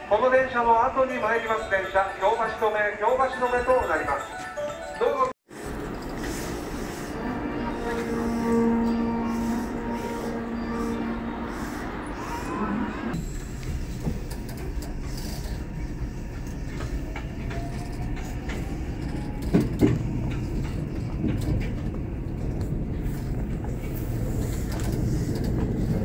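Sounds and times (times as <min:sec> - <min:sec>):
train rumble: 0:05.5 - 0:26.0.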